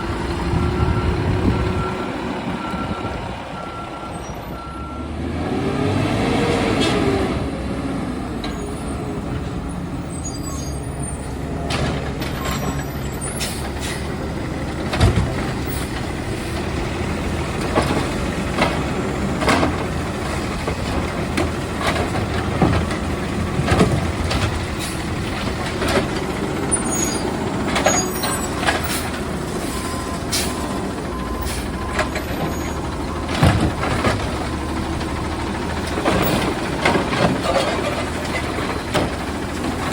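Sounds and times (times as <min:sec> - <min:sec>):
garbage truck engine running: 0:00.0 - 0:05.5, 0:07.6 - 0:39.9.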